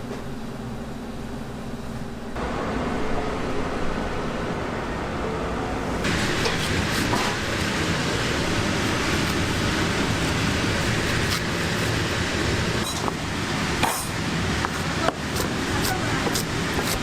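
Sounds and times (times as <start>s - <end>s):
kitchen noise hiss: 6.0s - 17.0s.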